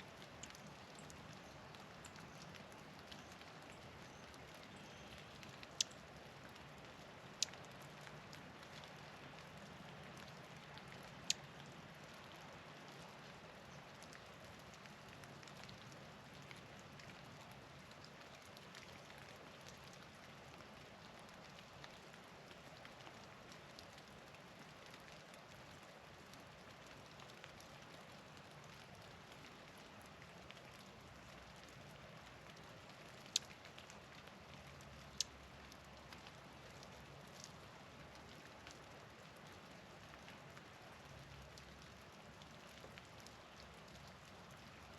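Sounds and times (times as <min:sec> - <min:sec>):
light scattered ticks: 0:00.1 - 0:12.3, 0:26.3 - 0:39.4.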